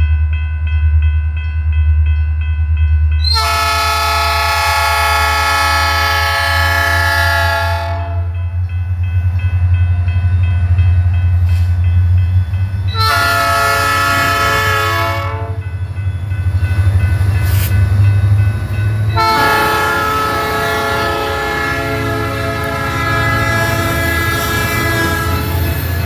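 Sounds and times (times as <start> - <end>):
locomotive air horn blasts: 3.2 - 8.4, 12.9 - 15.6, 19.2 - 25.6.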